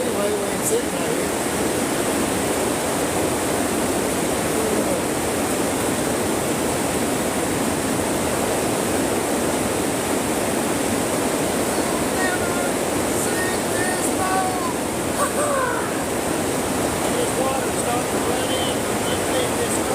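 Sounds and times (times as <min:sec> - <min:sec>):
rain on plastic greenhouse roof: 0:00.0 - 0:01.4, 0:11.0 - 0:19.9.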